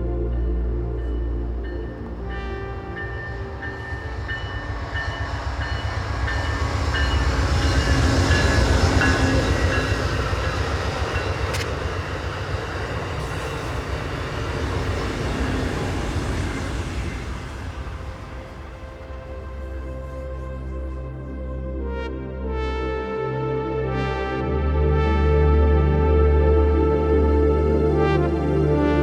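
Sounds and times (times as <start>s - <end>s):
train rumbling on rails: 0.0s - 21.9s
sharp click: 11.5s - 11.8s.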